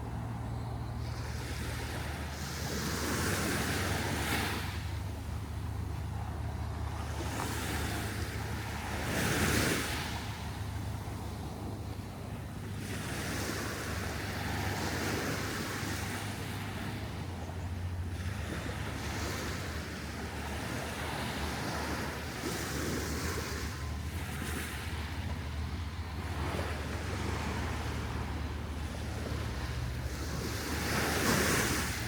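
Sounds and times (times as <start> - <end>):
wind rumbling on microphone: 0.0 - 32.0
small surf breaking on sand: 18.1 - 32.0.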